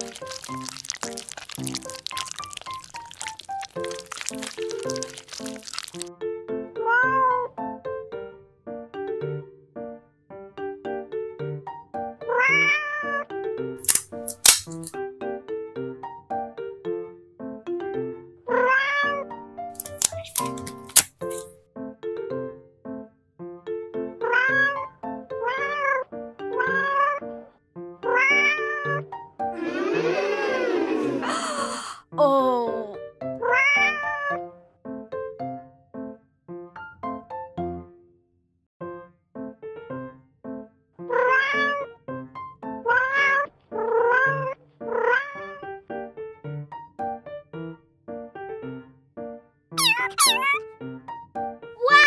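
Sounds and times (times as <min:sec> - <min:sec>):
cat meowing: 0:28.1 - 0:29.0, 0:33.4 - 0:34.4, 0:41.1 - 0:41.9, 0:42.9 - 0:45.6, 0:49.8 - 0:50.6
kitten meowing: 0:49.8 - 0:50.6.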